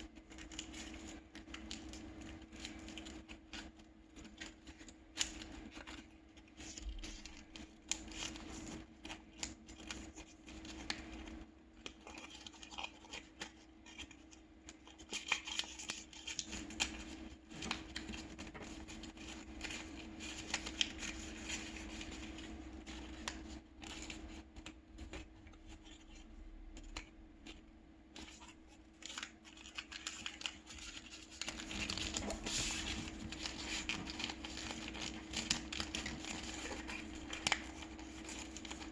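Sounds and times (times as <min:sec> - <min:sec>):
paper being folded and creased: 0:00.0 - 0:38.9.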